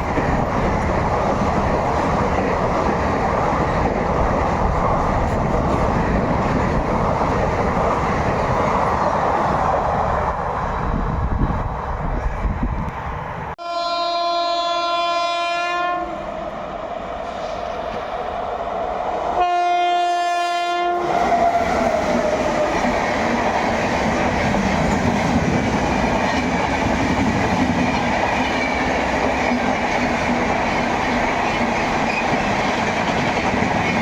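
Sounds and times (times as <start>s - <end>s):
train coaches rumbling: 0.0s - 13.6s, 14.6s - 34.0s
locomotive horn blasts: 13.6s - 16.2s, 19.4s - 21.1s.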